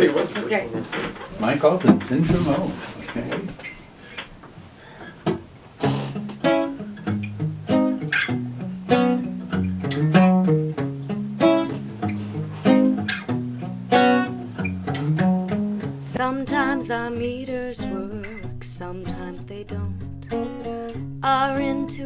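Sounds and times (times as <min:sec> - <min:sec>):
guitar strumming chords: 0:05.8 - 0:22.0.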